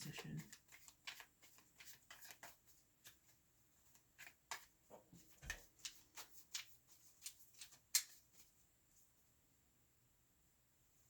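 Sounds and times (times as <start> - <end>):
cards clicking on a table: 0.0 - 3.2, 4.2 - 4.7.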